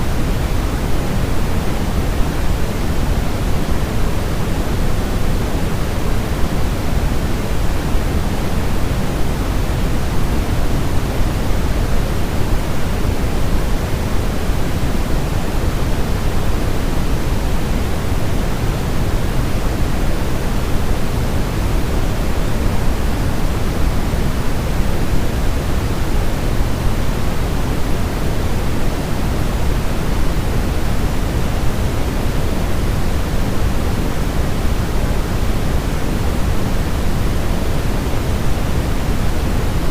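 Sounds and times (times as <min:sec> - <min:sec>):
low white noise hiss: 0:00.0 - 0:39.9.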